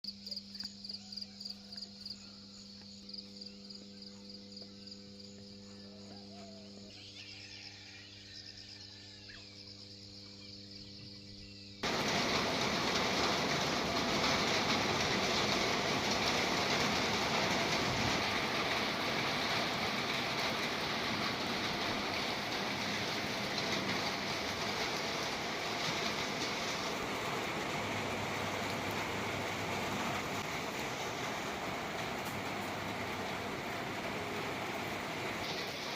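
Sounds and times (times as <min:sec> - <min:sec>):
heavy rain hissing: 0:11.8 - 0:35.9.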